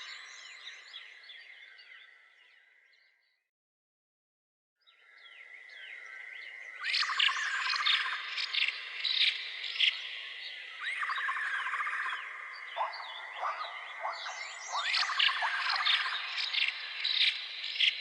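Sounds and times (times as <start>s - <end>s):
animal chirps and calls: 12.8s - 17.9s.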